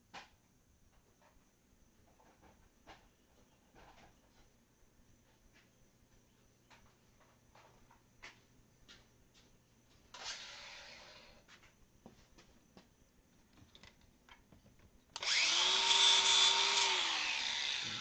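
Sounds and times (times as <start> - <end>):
angle grinder whining: 15.2 - 18.0.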